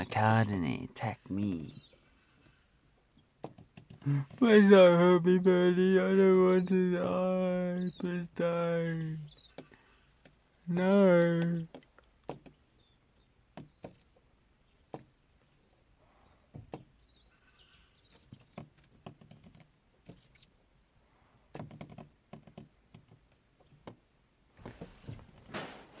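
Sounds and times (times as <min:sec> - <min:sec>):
birds pecking at car: 0:01.8 - 0:04.5, 0:08.9 - 0:26.0.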